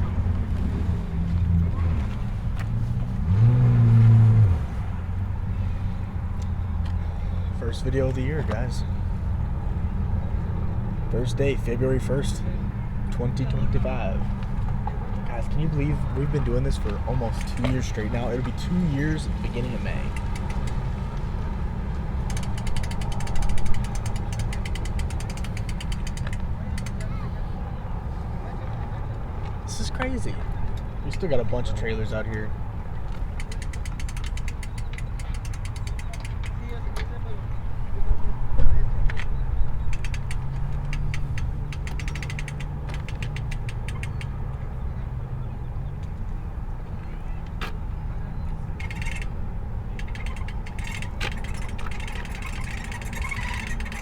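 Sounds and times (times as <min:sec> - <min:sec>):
engine idling rumble: 0:00.0 - 0:54.0
winch ratchet clicking: 0:17.3 - 0:18.0, 0:20.1 - 0:21.0, 0:22.1 - 0:27.2, 0:33.3 - 0:36.8, 0:39.8 - 0:44.4, 0:48.8 - 0:54.0.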